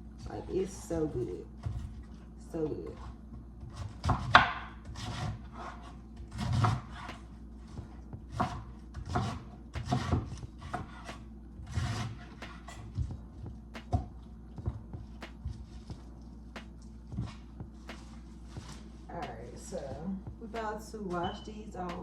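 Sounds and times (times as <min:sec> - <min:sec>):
knife cutting on a cutting board: 0:03.0 - 0:13.1.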